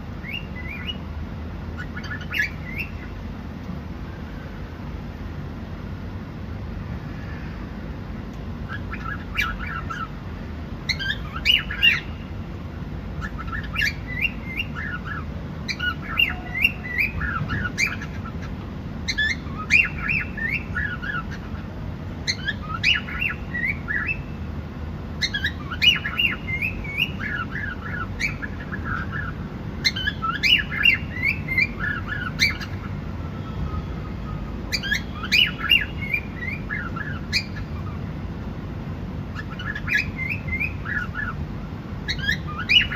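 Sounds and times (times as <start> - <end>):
cockatiel chirping and whistling: 0.2 - 1.0, 1.8 - 3.1, 8.7 - 10.1, 10.9 - 12.1, 13.2 - 18.4, 19.0 - 21.6, 22.2 - 24.3, 25.2 - 32.9, 33.7 - 38.0, 39.4 - 41.4, 42.1 - 42.9.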